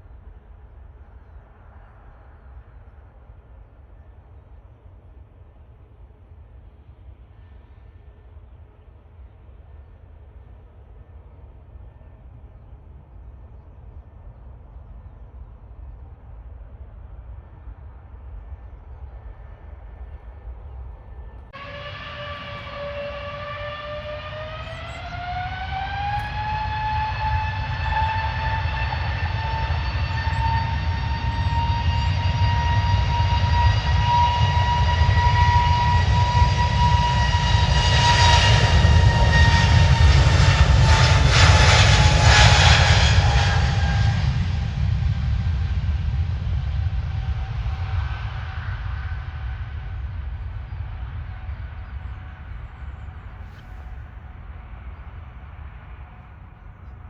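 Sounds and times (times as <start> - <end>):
jet engines spooling up: 21.5 - 54.6.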